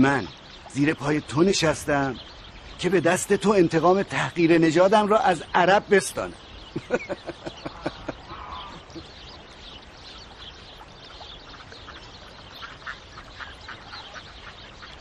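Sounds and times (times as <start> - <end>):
steady outdoor hiss: 0.0 - 15.0
short bird calls: 5.1 - 15.0.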